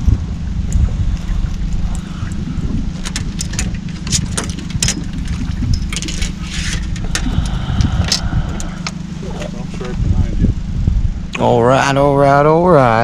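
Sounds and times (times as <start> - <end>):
boat motor running: 0.0 - 13.0
wind on microphone: 0.0 - 13.0
sharp clicks and knocks: 3.0 - 9.0.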